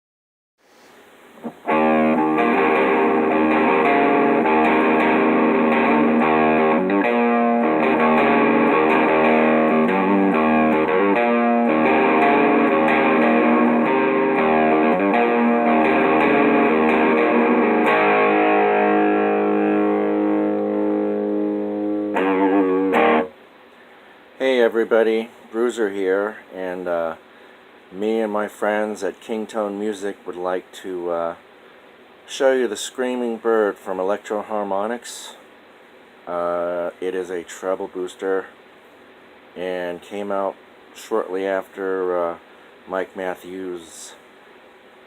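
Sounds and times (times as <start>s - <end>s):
electric guitar chords and riffs: 1.4s - 23.4s.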